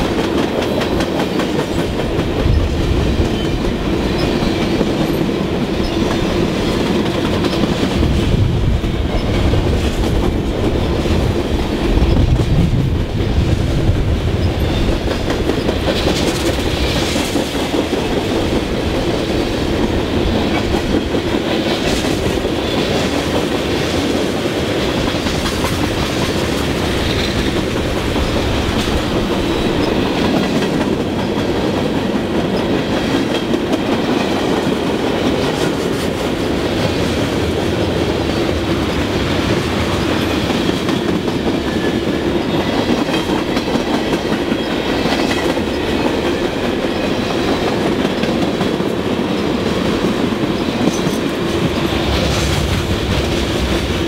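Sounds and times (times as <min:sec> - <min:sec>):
freight train cars rolling past: 0:00.0 - 0:54.0.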